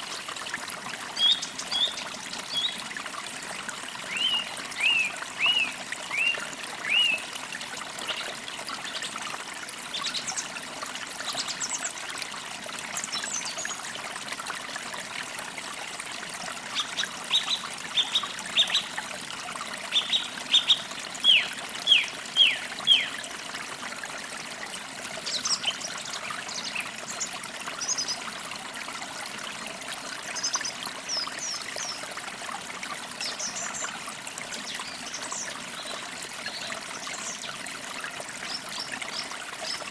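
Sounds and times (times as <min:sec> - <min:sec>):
stream trickling: 0:00.0 - 0:39.9
birds singing: 0:01.2 - 0:02.8, 0:04.1 - 0:07.3, 0:16.8 - 0:18.9, 0:19.9 - 0:23.2.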